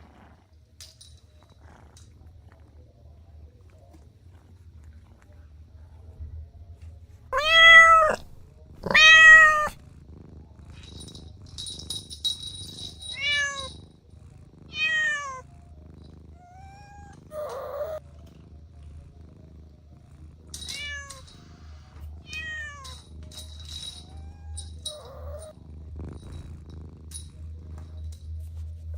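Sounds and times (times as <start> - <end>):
cat meowing: 7.4 - 9.8, 13.1 - 13.7, 14.7 - 15.4, 16.4 - 18.0, 20.7 - 21.2, 22.2 - 23.0, 24.1 - 25.5.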